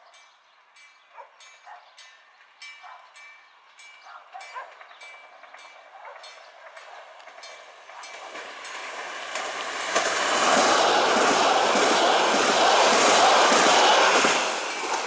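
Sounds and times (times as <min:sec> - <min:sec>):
train wheels rushing on rail: 0:03.8 - 0:15.0.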